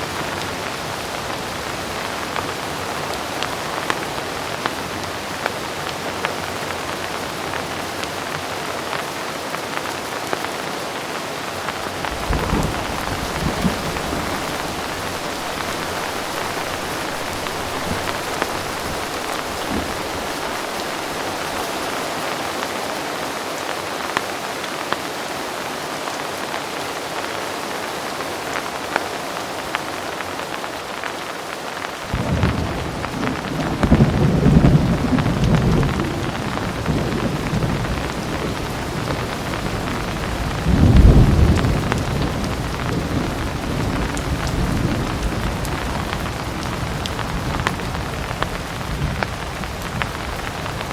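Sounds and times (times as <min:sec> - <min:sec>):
heavy rain falling: 0:00.0 - 0:50.9
distant thunder rumble: 0:11.8 - 0:21.9, 0:32.1 - 0:50.9.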